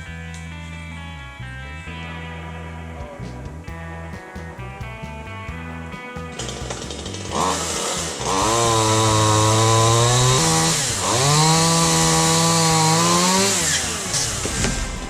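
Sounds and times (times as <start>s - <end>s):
chainsaw engine revving: 6.3s - 15.0s.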